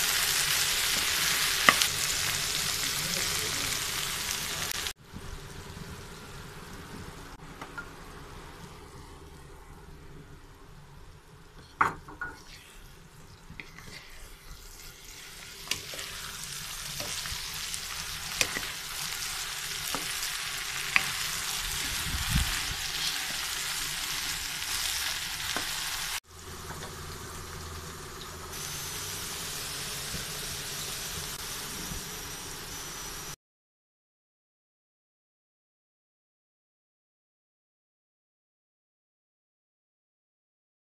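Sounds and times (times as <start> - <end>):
vegetables sizzling in a hot pan: 0.0 - 9.4, 11.6 - 33.4
wooden spatula stirring: 13.4 - 17.3.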